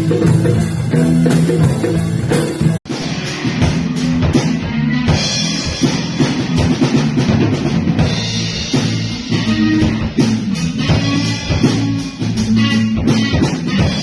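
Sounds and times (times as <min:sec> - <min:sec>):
band playing guitar and drums: 0:00.0 - 0:14.0.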